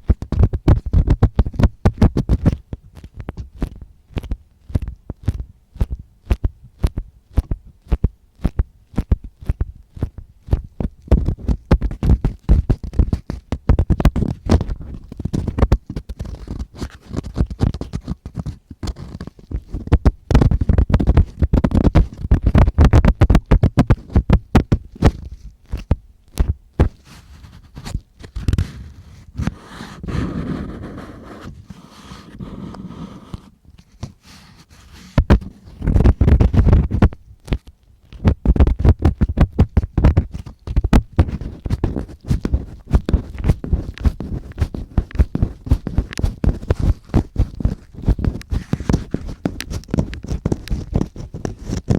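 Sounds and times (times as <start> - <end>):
ear-cleaning tool scratching: 26.9 - 33.5.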